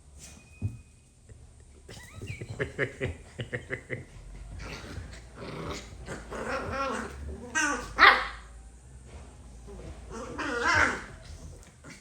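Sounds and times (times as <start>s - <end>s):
puppies growling in play: 3.3s - 8.4s, 9.6s - 12.0s.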